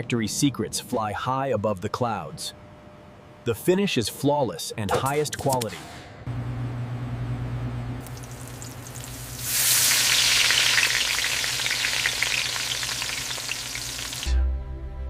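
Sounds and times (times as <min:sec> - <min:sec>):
meat sizzling: 0:08.0 - 0:14.3.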